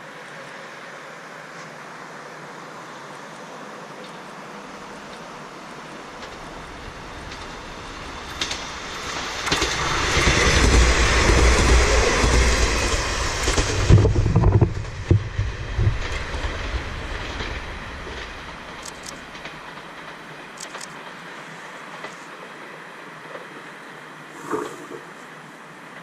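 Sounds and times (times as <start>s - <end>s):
diesel railcar passing: 0.0s - 26.0s.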